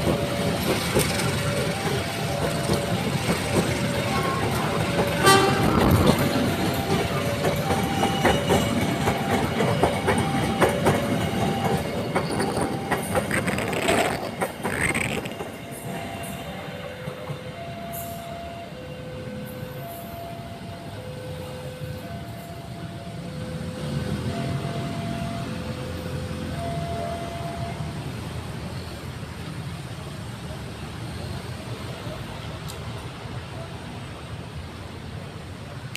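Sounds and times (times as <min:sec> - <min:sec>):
train wheels clicking over rail joints: 0:00.0 - 0:16.1
train wheel squeal: 0:00.0 - 0:29.6
level crossing alarm two tones: 0:04.0 - 0:13.4.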